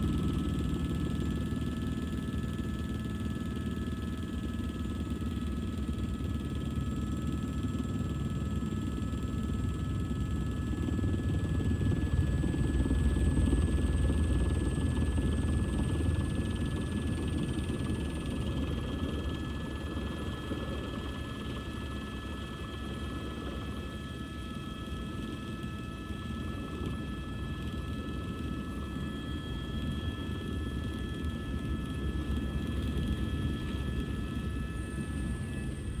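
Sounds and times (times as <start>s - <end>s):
helicopter rotor and engine rumble: 0.0s - 36.0s.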